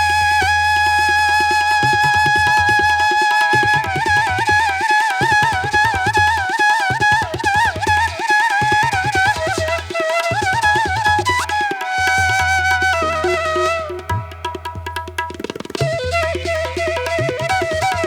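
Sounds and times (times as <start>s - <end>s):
wavering melody: 10.8s - 18.0s.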